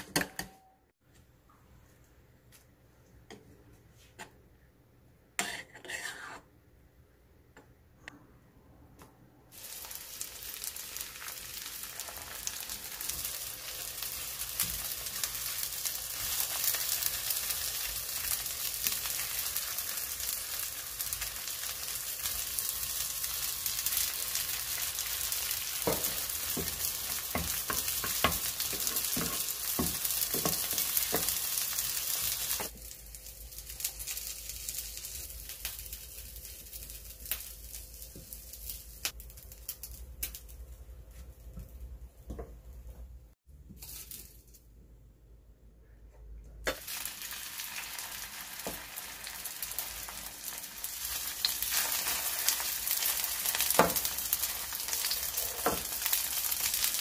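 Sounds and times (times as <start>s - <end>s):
food sizzling in oil: 9.5s - 40.6s, 46.7s - 57.0s.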